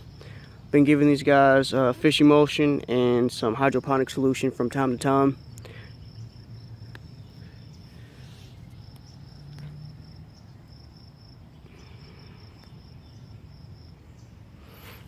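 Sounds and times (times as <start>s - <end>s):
cricket trilling: 0.0s - 15.0s.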